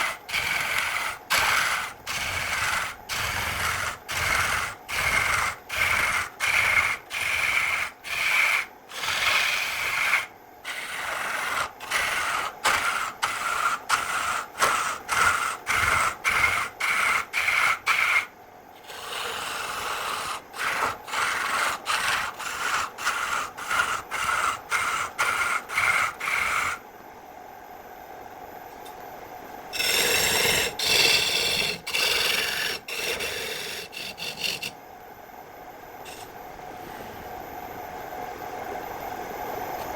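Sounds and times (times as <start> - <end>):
hand tool scraping wood: 0.0 - 26.8, 29.8 - 34.7.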